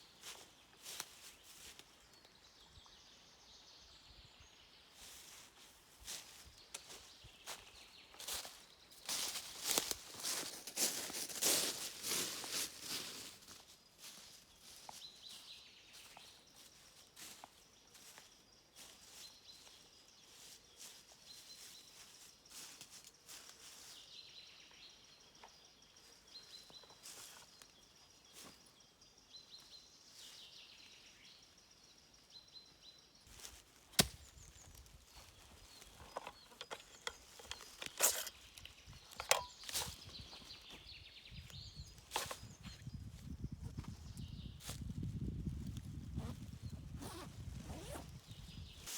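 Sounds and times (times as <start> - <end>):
faint bird chirps: 13.6 - 48.9.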